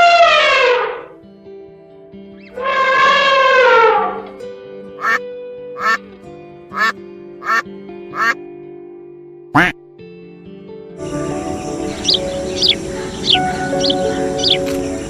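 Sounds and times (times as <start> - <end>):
background music with held notes: 0.0 - 15.0
duck quacking: 5.0 - 5.2, 5.8 - 6.0, 6.7 - 8.4, 9.6 - 9.8.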